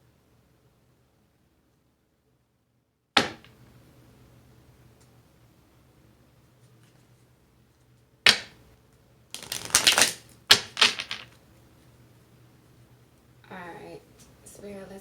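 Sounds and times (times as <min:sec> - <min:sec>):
sharp knock: 0:03.2 - 0:03.5, 0:08.3 - 0:08.6
cards shuffling: 0:09.4 - 0:11.4.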